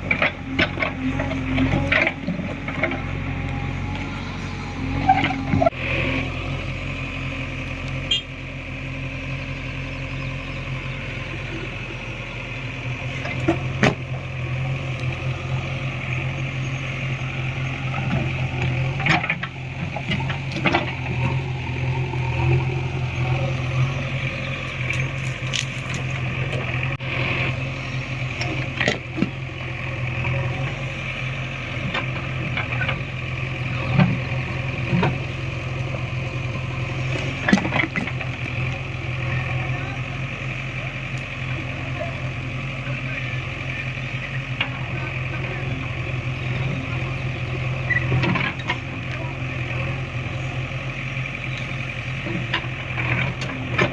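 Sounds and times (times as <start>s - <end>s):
knocks and clanks of digging: 0.0s - 3.1s, 18.0s - 21.4s, 37.3s - 38.4s
diesel engine running: 0.0s - 53.9s.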